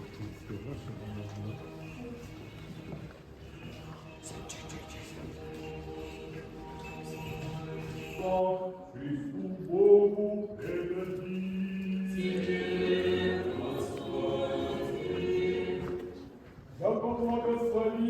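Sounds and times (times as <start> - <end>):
choir singing a slow chant: 3.8 - 18.0.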